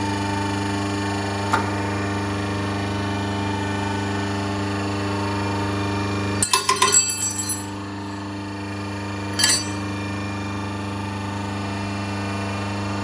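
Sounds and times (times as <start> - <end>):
hydraulic motor and pump humming: 0.0 - 13.0
steel clanking and ringing: 6.4 - 7.8, 9.3 - 9.9.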